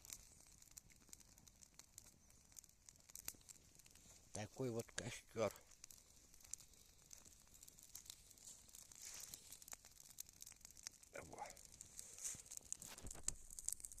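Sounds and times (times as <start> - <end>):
campfire crackling: 0.0 - 14.0
smouldering fire hiss: 0.0 - 14.0.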